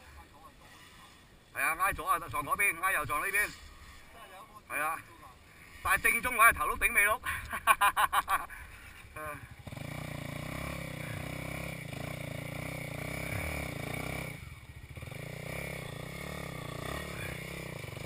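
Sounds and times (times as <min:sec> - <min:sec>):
vehicle engine running: 0:08.8 - 0:18.0.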